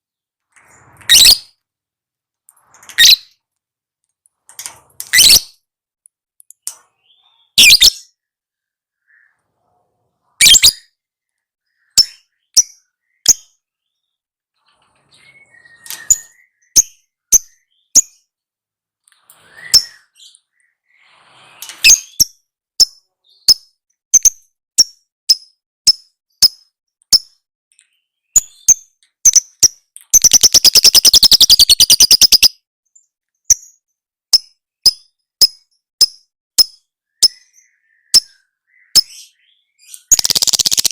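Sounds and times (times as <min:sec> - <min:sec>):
bird chirping: 0:00.0 - 0:01.6, 0:02.4 - 0:03.5, 0:04.3 - 0:40.9
bird rattling trill: 0:30.2 - 0:32.5, 0:40.1 - 0:40.9.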